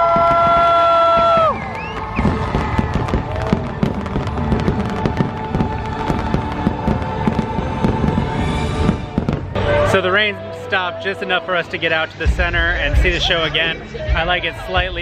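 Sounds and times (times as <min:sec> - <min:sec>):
fireworks pops and crackles: 0:00.0 - 0:09.6.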